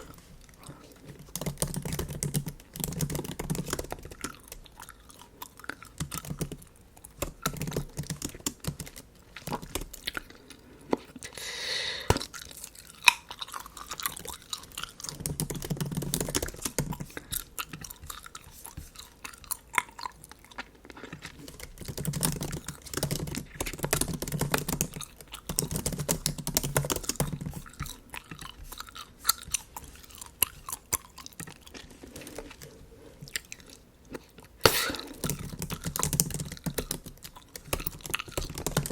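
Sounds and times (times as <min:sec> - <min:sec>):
bubble gum chewing: 0:00.0 - 0:11.3, 0:12.0 - 0:38.9
brief hissing noise: 0:34.6 - 0:35.2.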